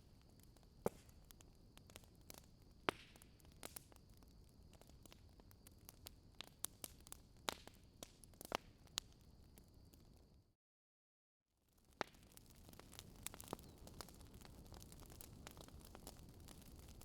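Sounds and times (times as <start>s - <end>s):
wood fire crackling: 0.0s - 10.2s, 11.7s - 17.0s
sharp fire pops: 0.4s - 4.0s, 11.9s - 17.0s.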